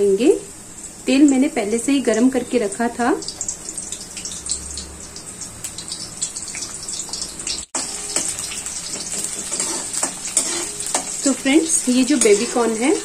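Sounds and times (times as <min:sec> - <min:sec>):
food sizzling in hot oil: 0:00.0 - 0:13.0
spoon stirring in oil: 0:06.0 - 0:13.0.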